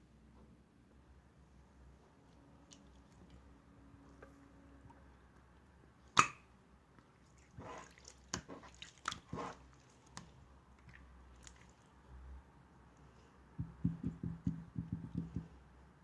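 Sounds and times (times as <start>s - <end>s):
slime sharp pop: 6.2s - 6.4s
wet slime squishing: 7.0s - 12.1s.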